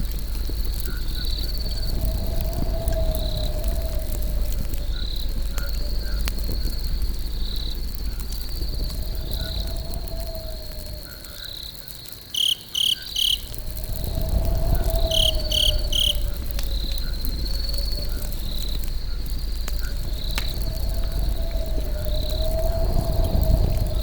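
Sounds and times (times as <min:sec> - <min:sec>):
campfire rumbling and crackling: 0:00.0 - 0:24.0
crickets chirping: 0:00.0 - 0:24.0
loud sharp chirps: 0:12.4 - 0:13.6, 0:15.0 - 0:16.3.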